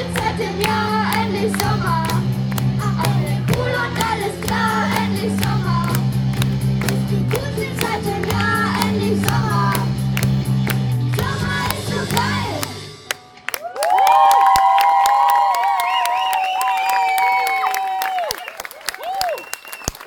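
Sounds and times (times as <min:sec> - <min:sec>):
live band playing: 0:00.0 - 0:13.6
audience cheering and whooping: 0:13.5 - 0:20.0.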